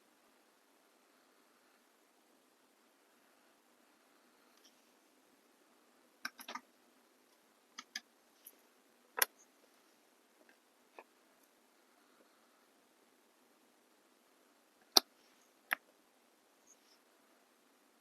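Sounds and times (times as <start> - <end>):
small clicks from bottles and tools: 6.2 - 6.6.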